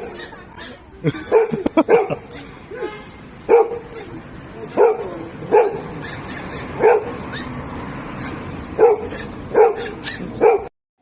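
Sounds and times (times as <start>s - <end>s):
dog barking: 1.3s - 2.9s, 3.5s - 7.6s, 8.2s - 10.7s.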